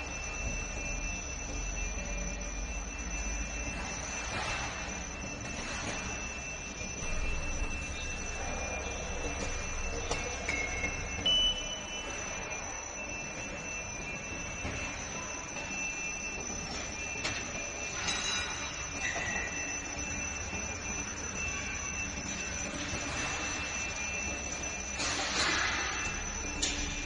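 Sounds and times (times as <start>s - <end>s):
thin high whine: 0.0s - 27.0s
metallic squeaks and clicks: 16.7s - 19.8s, 24.8s - 27.0s.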